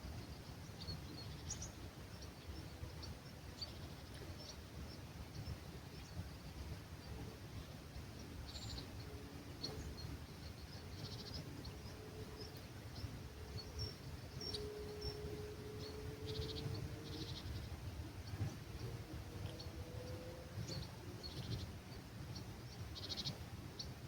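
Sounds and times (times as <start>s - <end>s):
low rumble of breeze: 0.0s - 24.0s
small birds chirping: 0.0s - 24.0s
faint low drone rising in pitch: 18.5s - 21.8s.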